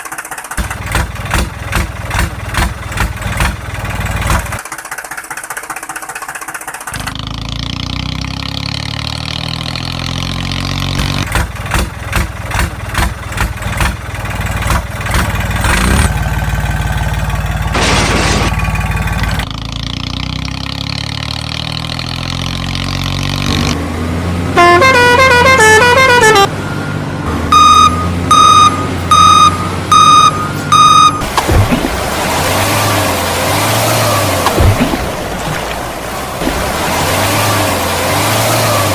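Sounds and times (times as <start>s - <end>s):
heavy vehicle engine running: 0.0s - 38.9s
loud horn honks: 24.5s - 26.6s.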